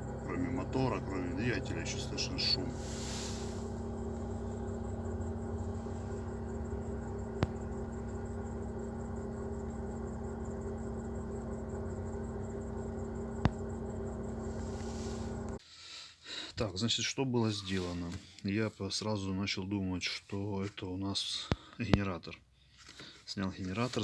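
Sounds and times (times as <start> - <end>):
car engine running: 0.0 - 15.6.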